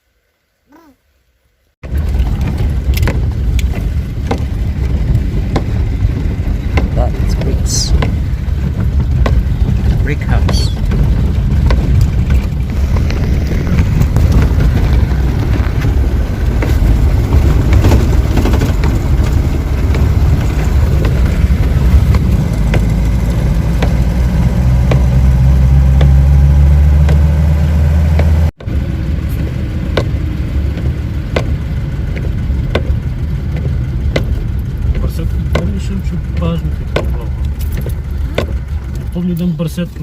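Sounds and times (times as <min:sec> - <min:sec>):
rattles and knocks: 0:01.8 - 0:27.4, 0:29.7 - 0:40.0
old car engine rumbling: 0:01.8 - 0:40.0
steady low hum: 0:01.8 - 0:40.0.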